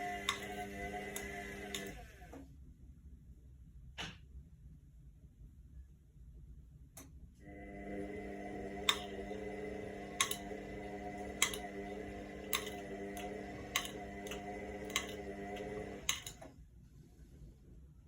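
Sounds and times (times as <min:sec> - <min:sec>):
washing machine drum clicking: 0:00.0 - 0:02.0, 0:08.2 - 0:16.5
washing machine motor hum: 0:00.0 - 0:02.5, 0:07.4 - 0:17.4.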